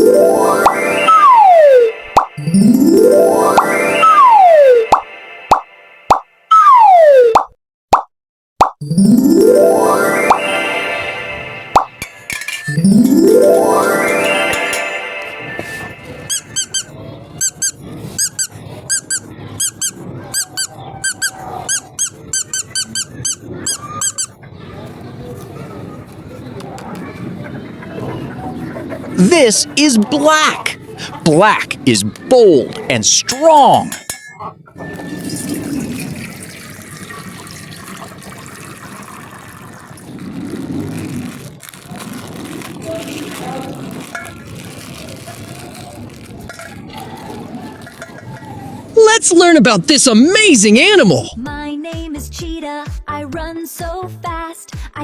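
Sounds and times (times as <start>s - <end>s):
high-pitched squeaks: 13.8s - 24.4s
water pouring and splashing: 34.9s - 48.4s.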